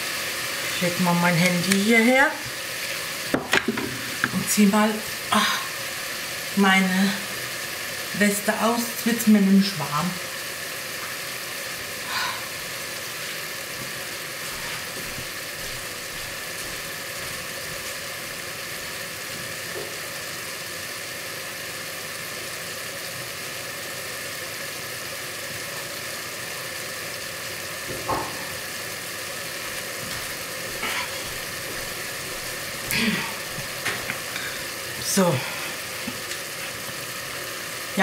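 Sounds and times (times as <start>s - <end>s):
meat frying hiss: 0.0s - 38.0s.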